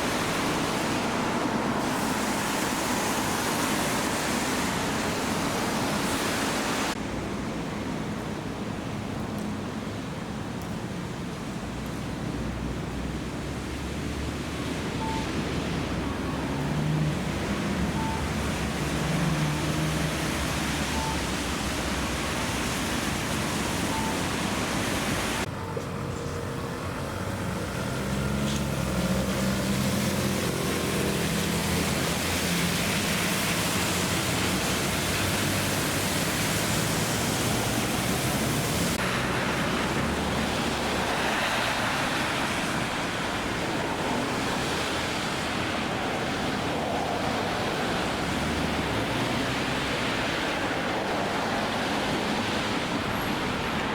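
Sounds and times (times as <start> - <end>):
rain hissing: 0.0 - 7.0, 13.8 - 25.5, 26.4 - 53.9
vehicles on wet road: 0.0 - 53.9
low engine hum: 11.7 - 51.4.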